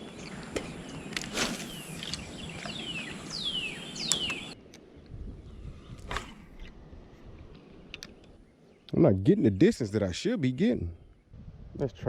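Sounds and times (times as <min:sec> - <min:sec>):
wind noise: 0:04.0 - 0:08.4, 0:10.9 - 0:12.0.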